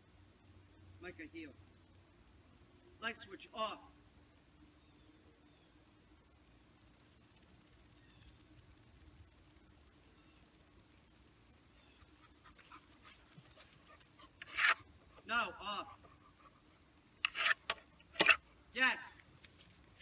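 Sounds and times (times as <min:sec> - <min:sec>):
high-pitched insect trill: 0:06.3 - 0:15.0.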